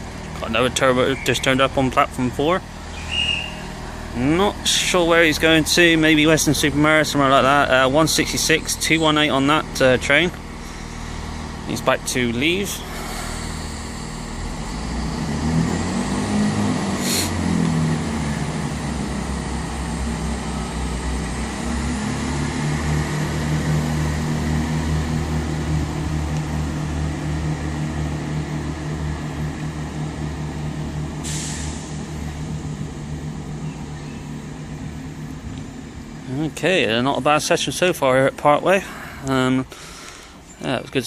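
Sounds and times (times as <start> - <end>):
diesel train engine droning: 0.0 - 41.0.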